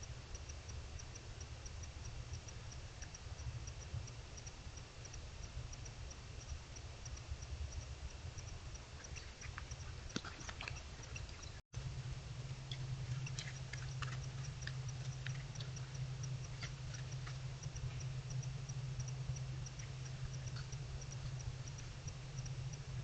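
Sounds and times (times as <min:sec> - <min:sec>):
low steady hum: 0:00.0 - 0:23.0
irregular clicks: 0:12.6 - 0:23.0.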